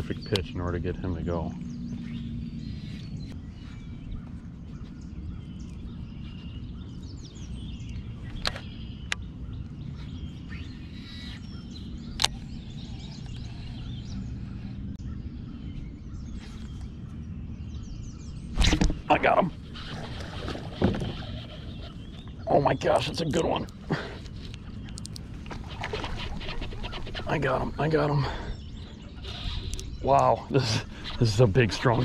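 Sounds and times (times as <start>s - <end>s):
steady low rumble: 0.0s - 20.5s
faint birds chirping: 0.0s - 32.0s.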